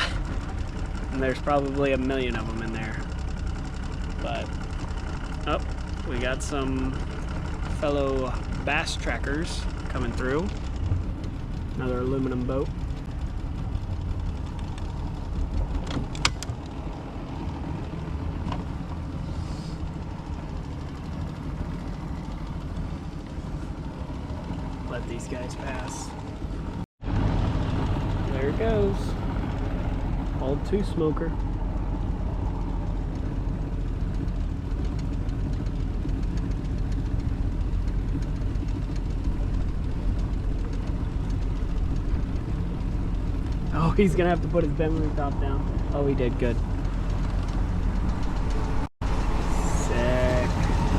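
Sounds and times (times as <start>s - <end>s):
outboard boat motors droning: 0.0s - 50.9s.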